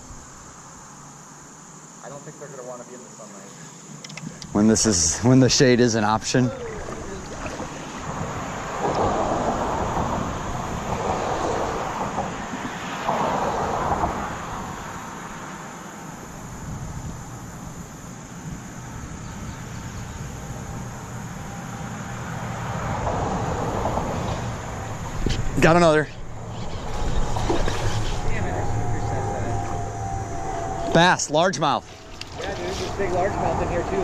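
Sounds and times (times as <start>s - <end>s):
low steady rumbling: 23.0s - 34.0s.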